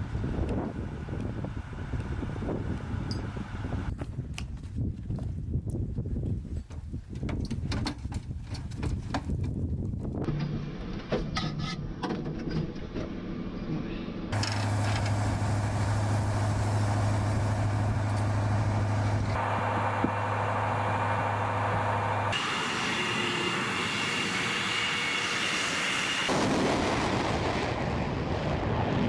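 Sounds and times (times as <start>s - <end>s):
steady low hum: 0.0s - 3.9s, 14.3s - 26.0s
jet aircraft engine noise: 0.0s - 4.5s, 14.3s - 29.0s
thin high whine: 14.4s - 26.3s.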